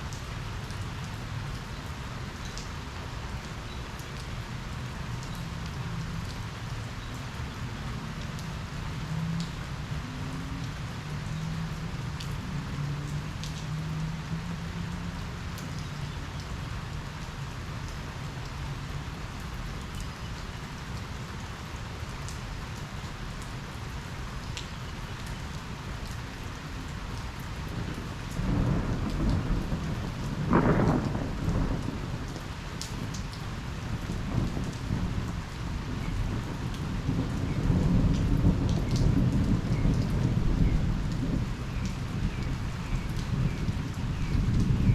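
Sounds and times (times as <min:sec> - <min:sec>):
steady rain falling: 0:00.0 - 0:44.9
thunder rumbling: 0:27.8 - 0:32.4, 0:33.0 - 0:44.9.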